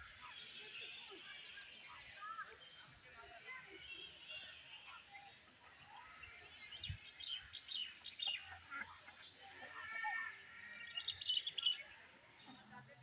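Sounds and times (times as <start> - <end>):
birds chirping: 5.9 - 12.0.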